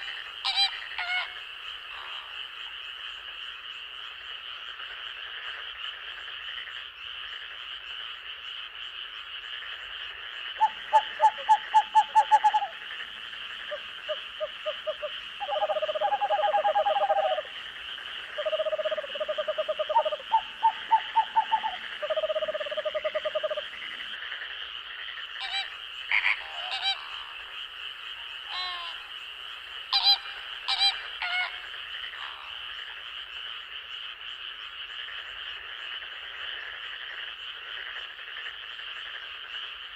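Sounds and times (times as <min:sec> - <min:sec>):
frogs rapid pulsed croaks: 0:00.0 - 0:39.9
high-pitched frog chorus: 0:00.0 - 0:39.9
short high frog calls: 0:09.5 - 0:24.4, 0:25.4 - 0:33.0.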